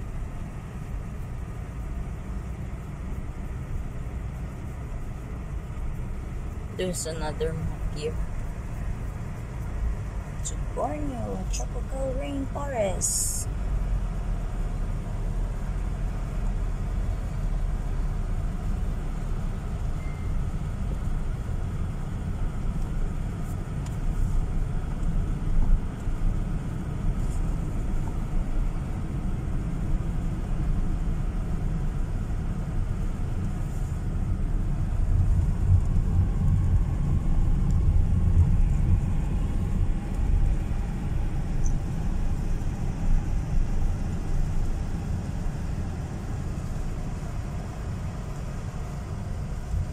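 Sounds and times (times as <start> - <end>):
car driving on gravel: 20.9 - 49.9.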